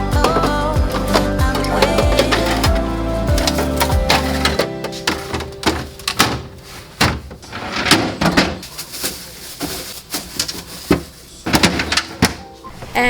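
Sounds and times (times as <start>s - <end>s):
background music: 0.0s - 6.8s
containers handled in a refrigerator: 0.0s - 12.6s.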